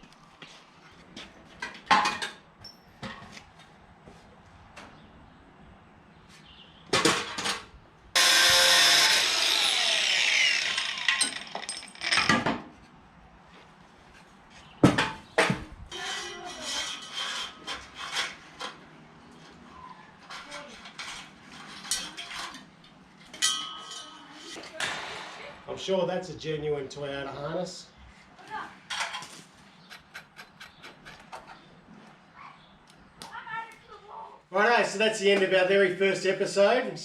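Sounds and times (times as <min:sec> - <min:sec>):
power tool winding down: 0:08.2 - 0:12.1.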